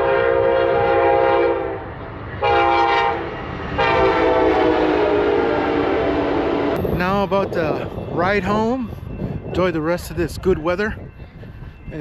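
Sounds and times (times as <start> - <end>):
train air horn blasts: 0.0 - 6.8.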